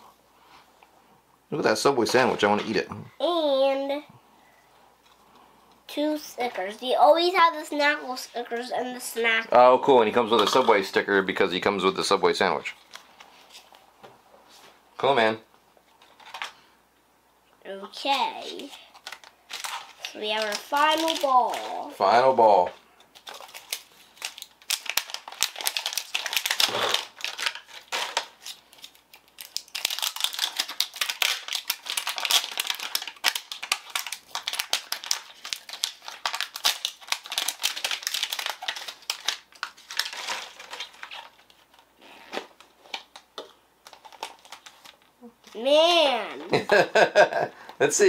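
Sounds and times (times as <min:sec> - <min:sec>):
plastic packaging crinkling and tearing: 0:18.0 - 0:22.0, 0:23.1 - 0:45.7.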